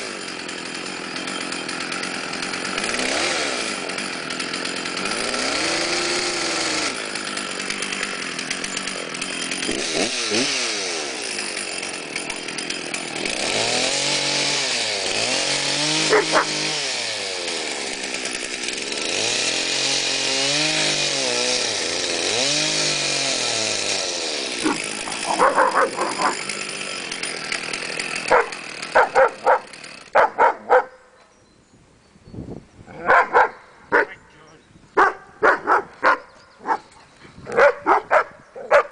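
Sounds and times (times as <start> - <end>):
chainsaw running: 0.0 - 31.0, 35.0 - 38.9
dog barking: 16.1 - 16.6, 25.3 - 26.4, 28.3 - 31.0, 33.0 - 34.2, 35.0 - 36.8, 37.5 - 38.9.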